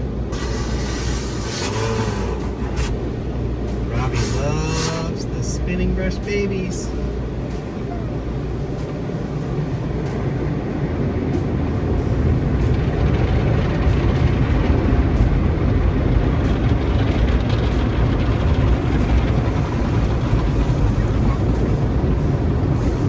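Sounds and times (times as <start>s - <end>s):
car wash brushes scrubbing: 0.2s - 3.2s, 3.8s - 6.8s.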